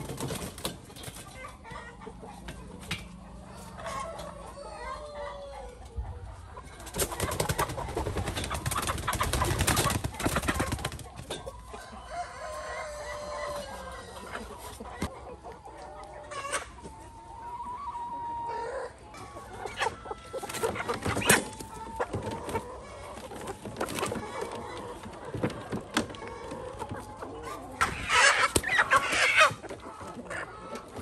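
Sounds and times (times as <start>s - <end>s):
chickens clucking: 0.0s - 31.0s.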